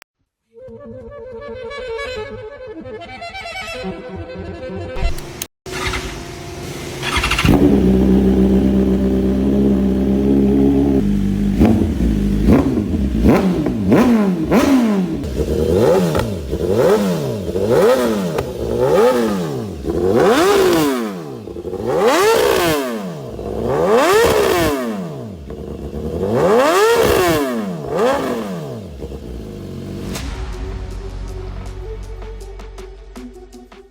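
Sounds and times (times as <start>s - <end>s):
motorcycle engine revving: 5.0s - 30.3s.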